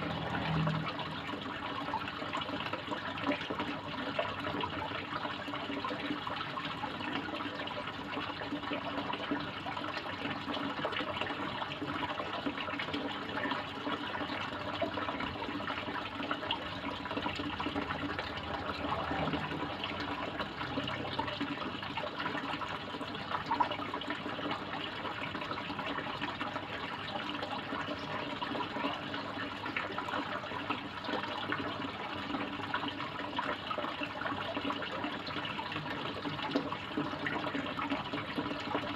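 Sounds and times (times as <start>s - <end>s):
pond water splashing: 0.0s - 3.4s.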